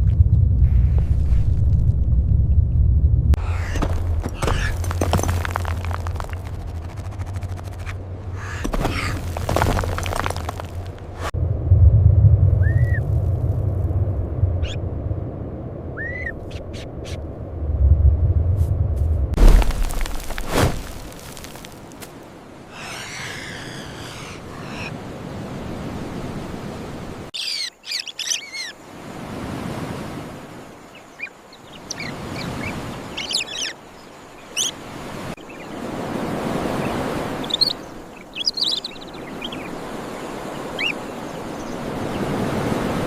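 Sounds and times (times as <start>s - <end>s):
surf surging: 34.8s - 43.0s.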